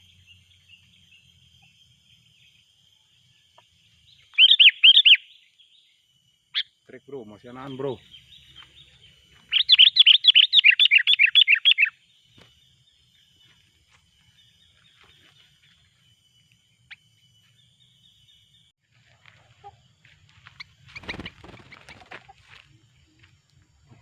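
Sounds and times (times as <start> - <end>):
bird chattering call: 4.4 - 5.3, 9.5 - 12.0.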